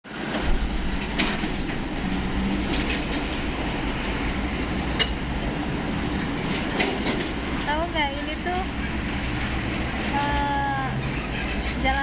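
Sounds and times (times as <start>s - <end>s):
heavy trucks passing: 0.0s - 12.0s
light clanks and rattles: 0.1s - 7.7s.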